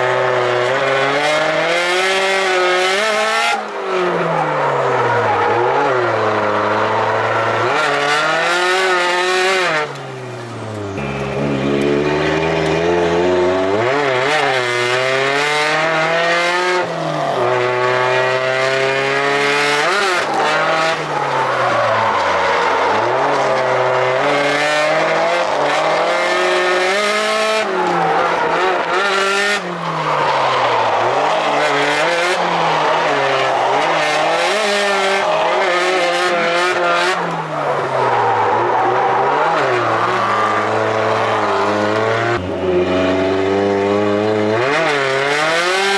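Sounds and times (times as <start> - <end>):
car engine revving hard: 0.0 - 45.9
tyres squealing: 19.2 - 42.4.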